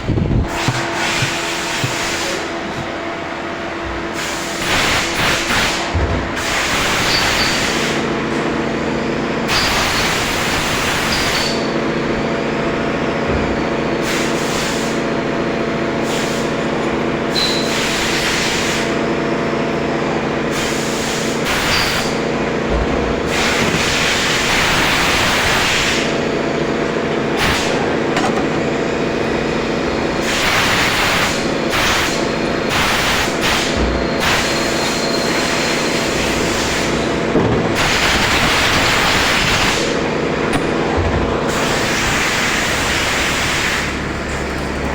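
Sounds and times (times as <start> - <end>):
machine motor hum: 0.0 - 44.9
machine hissing: 4.1 - 8.1, 9.5 - 11.9, 20.4 - 44.1.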